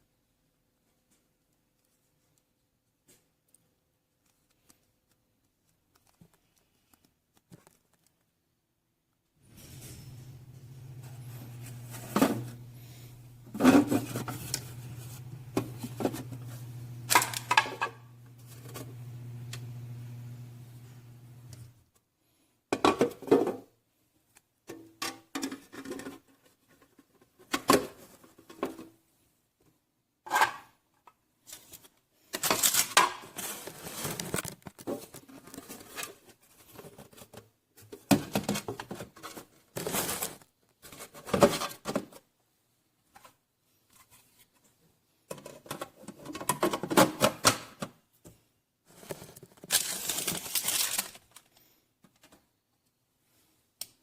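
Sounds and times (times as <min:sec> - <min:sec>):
objects rustling and knocking: 0:09.4 - 0:19.7, 0:31.5 - 0:42.3.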